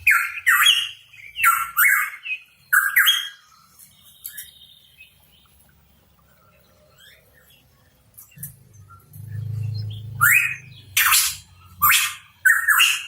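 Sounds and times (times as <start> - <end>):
bird harsh upward-sweeping calls: 0.0 - 3.6, 9.4 - 13.0
faint bird chirps: 0.0 - 13.0.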